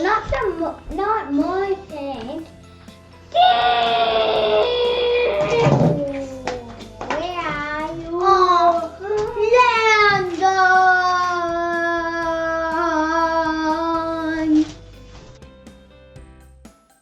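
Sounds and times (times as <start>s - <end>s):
child singing: 4.6s - 14.7s.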